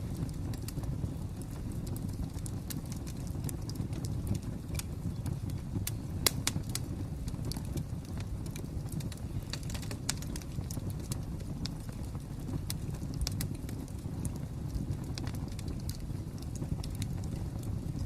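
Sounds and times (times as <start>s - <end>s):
fire crackling and popping: 0.0s - 18.0s
low rumble of burning fire: 0.0s - 18.0s.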